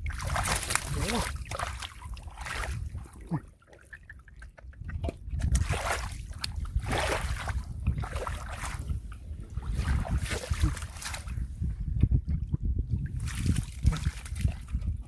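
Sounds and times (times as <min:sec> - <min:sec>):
splashing in shallow muddy water: 0:00.0 - 0:15.0.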